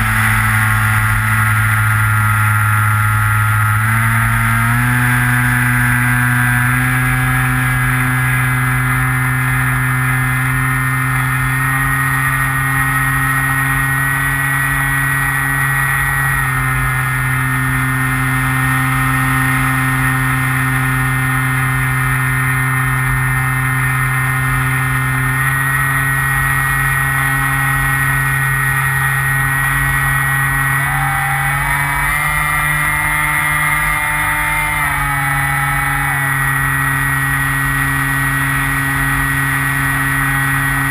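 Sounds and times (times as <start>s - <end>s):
electric motor and propeller running: 0.0s - 40.9s.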